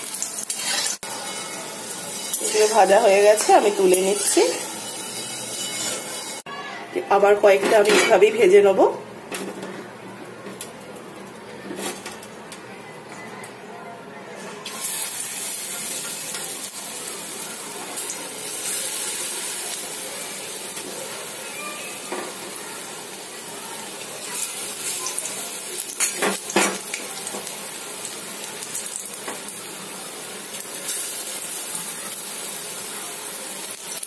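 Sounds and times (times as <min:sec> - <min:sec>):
battered beans sizzling in oil: 0:00.0 - 0:06.5, 0:14.6 - 0:34.0.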